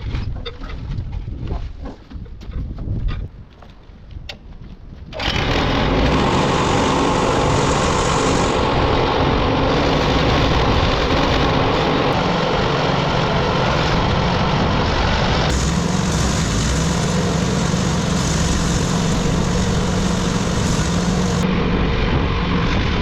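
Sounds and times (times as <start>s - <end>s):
wood chipper engine running: 5.2s - 14.3s, 15.2s - 21.4s
steady low hum: 6.1s - 22.5s.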